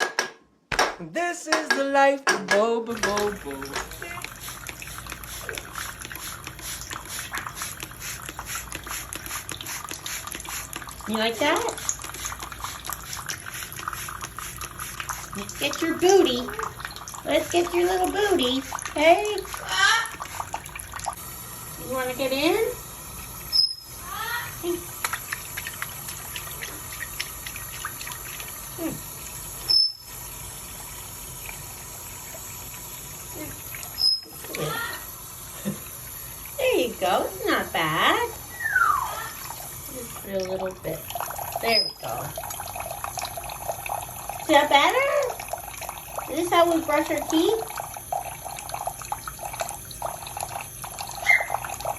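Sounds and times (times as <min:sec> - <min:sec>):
tap water splashing into sink: 0:00.0 - 0:21.2, 0:22.6 - 0:30.0.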